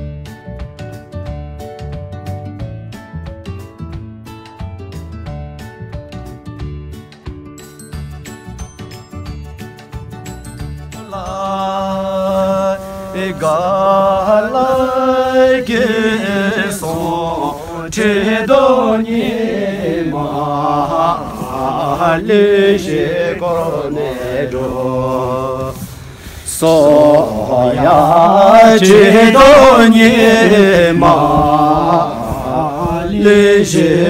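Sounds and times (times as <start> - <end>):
person chanting a prayer: 11.2 - 25.8, 26.5 - 34.0.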